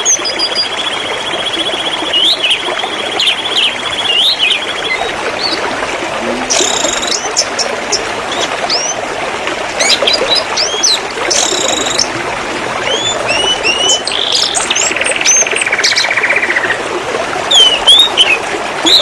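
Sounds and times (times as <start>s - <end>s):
canary singing: 12.8s - 16.3s, 17.5s - 19.0s.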